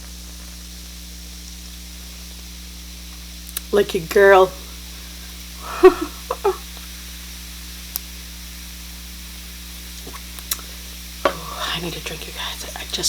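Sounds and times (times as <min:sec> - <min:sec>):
low electrical hum and hiss: 0:00.0 - 0:13.0
voice humming: 0:05.5 - 0:06.8, 0:10.1 - 0:13.0
close mouth sound: 0:10.0 - 0:11.6.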